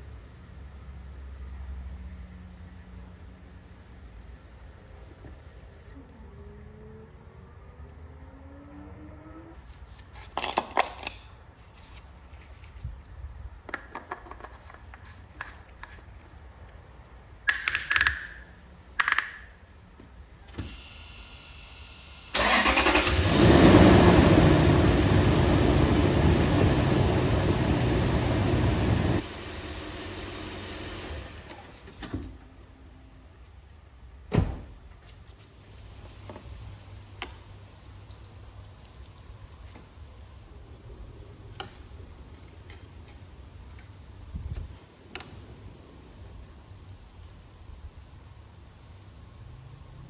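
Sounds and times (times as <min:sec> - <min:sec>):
car engine starting and running: 0:20.7 - 0:31.9.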